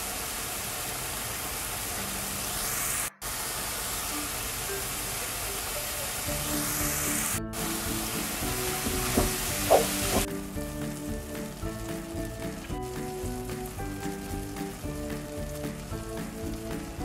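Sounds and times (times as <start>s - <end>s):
vegetables sizzling in a frying pan: 0.0s - 17.0s
light background music: 6.2s - 17.0s
spatula knocking against pan: 8.8s - 10.3s.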